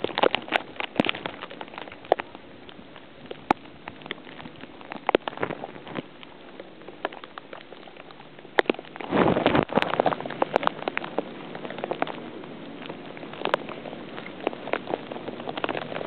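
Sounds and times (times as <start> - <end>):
snow pattering against camera: 0.0 - 16.0.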